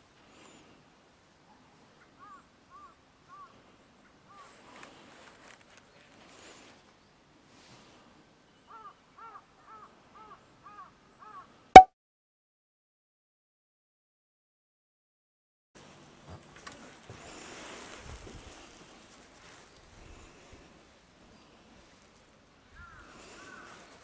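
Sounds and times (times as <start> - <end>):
faint crows cawing: 8.7 - 11.5, 22.8 - 23.9.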